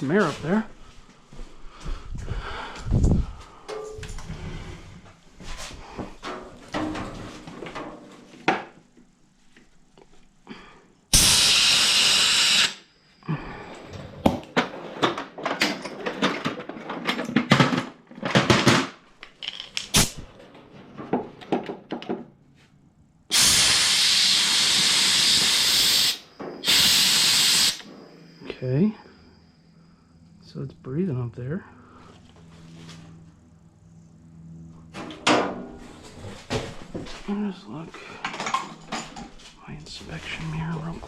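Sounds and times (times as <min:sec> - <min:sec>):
compressed air blasts hissing: 0:11.1 - 0:12.8, 0:23.3 - 0:27.9
small parts and tools clattering: 0:13.7 - 0:22.3, 0:38.1 - 0:39.6.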